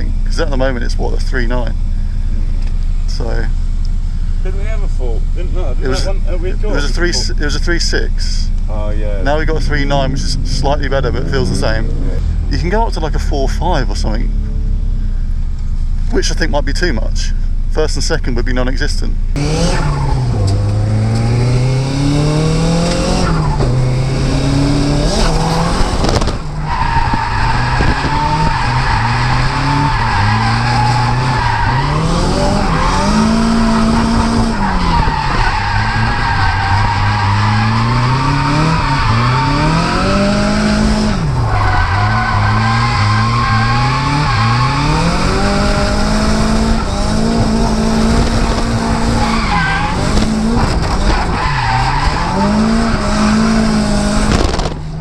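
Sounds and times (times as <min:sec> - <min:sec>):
car engine revving hard: 0:09.2 - 0:12.8, 0:19.3 - 0:55.0
tyres squealing and skidding: 0:19.6 - 0:54.6.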